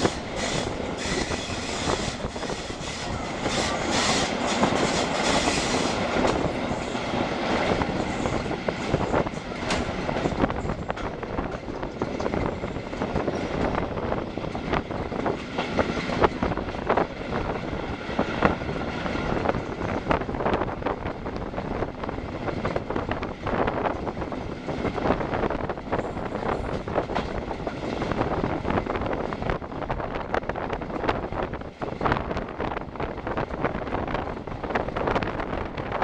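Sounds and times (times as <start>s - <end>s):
train wheels clattering over rails: 0.0s - 20.6s, 21.4s - 29.4s
wind rushing over microphone: 0.0s - 36.0s.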